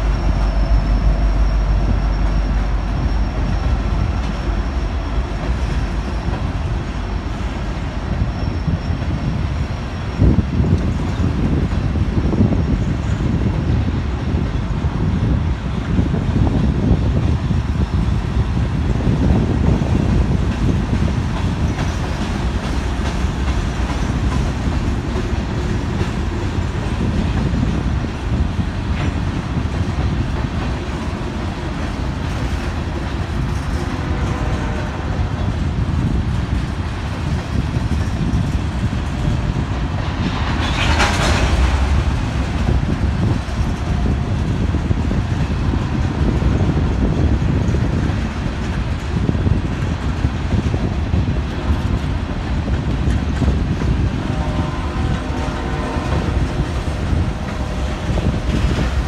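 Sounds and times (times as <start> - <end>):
train wheels clicking over rail joints: 15.8 - 59.0.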